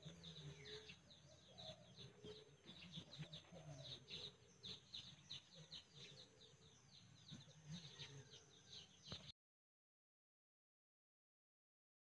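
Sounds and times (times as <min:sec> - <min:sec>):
faint birds chirping: 0:00.0 - 0:09.4.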